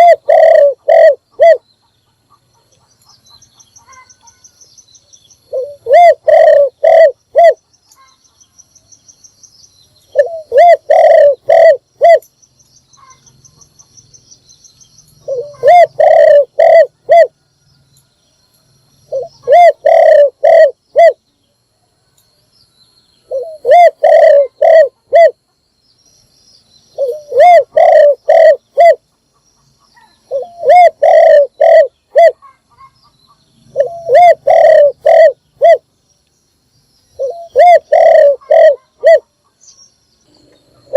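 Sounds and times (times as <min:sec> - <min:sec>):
dove cooing: 0:00.0 - 0:01.6, 0:05.5 - 0:07.6, 0:10.1 - 0:12.3, 0:15.2 - 0:17.4, 0:19.1 - 0:21.2, 0:23.3 - 0:25.4, 0:27.0 - 0:29.0, 0:30.0 - 0:33.0, 0:33.7 - 0:35.8, 0:37.2 - 0:39.6.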